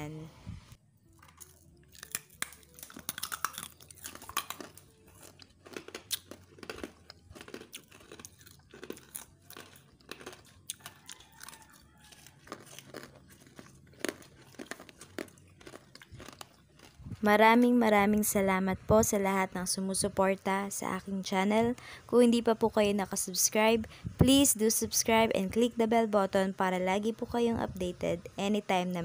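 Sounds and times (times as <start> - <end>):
crunching brittle candy: 1.0 - 17.6.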